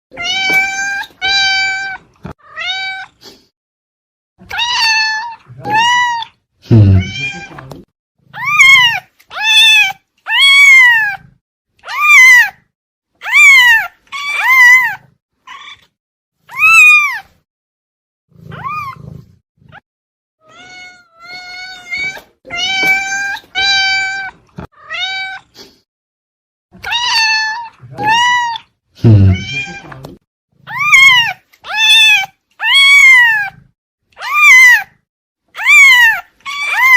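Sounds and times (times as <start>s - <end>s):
cat meowing: 0.1s - 3.2s, 4.4s - 7.7s, 8.4s - 12.6s, 13.2s - 15.9s, 16.5s - 17.3s, 18.4s - 19.1s, 20.4s - 25.6s, 26.8s - 30.0s, 30.7s - 33.6s, 34.2s - 35.0s, 35.6s - 36.9s.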